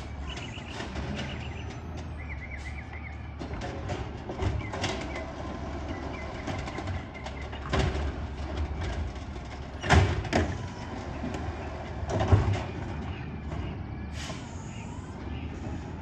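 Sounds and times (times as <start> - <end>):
garbage truck engine running: 0.0 - 16.0.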